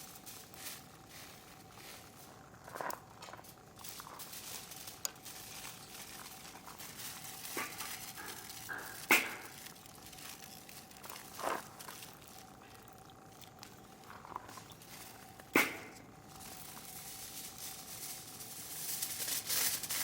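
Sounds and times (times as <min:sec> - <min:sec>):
wood fire crackling: 0:00.0 - 0:20.0
sharp pops of fire: 0:07.5 - 0:09.8, 0:15.4 - 0:16.1.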